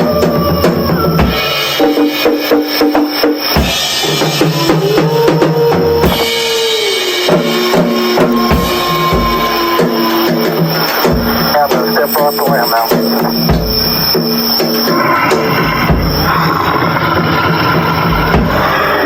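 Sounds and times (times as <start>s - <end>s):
drum kit solo: 0.0s - 19.0s
held background tones: 4.2s - 16.8s.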